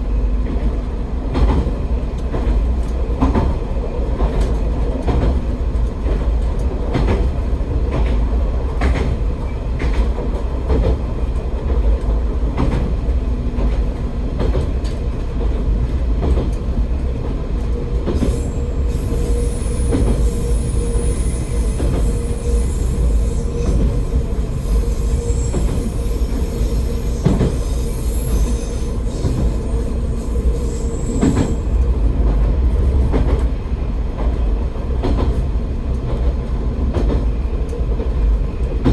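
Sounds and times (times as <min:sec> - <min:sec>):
railcar rumbling: 0:00.0 - 0:38.9
high wheel squeal: 0:18.2 - 0:31.9.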